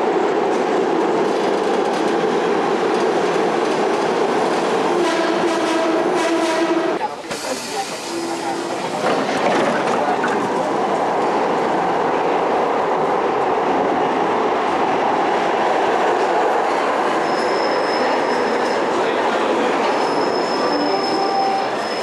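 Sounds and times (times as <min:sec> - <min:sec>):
high wheel squeal: 0:17.2 - 0:19.0, 0:19.8 - 0:22.0.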